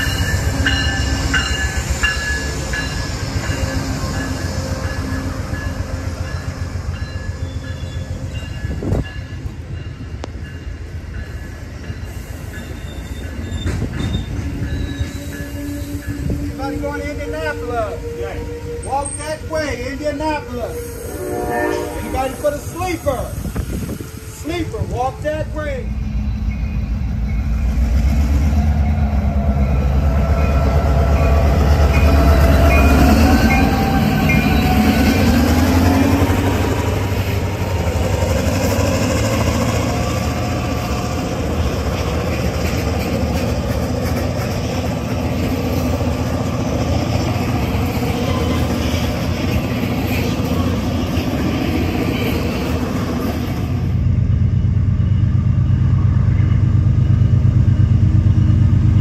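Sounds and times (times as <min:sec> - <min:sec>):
wavering high squeals: 0:00.0 - 0:09.4, 0:12.1 - 0:25.2, 0:26.0 - 0:27.8
diesel locomotive engine working: 0:00.0 - 0:59.0
freight cars rolling on rails: 0:00.0 - 0:59.0.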